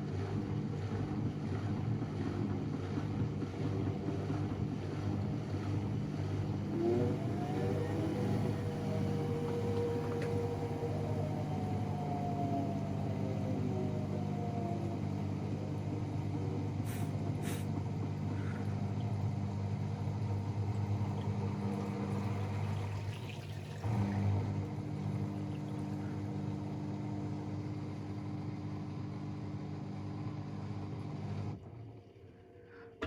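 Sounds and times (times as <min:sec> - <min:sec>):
washing machine spinning hum: 0:00.0 - 0:33.0.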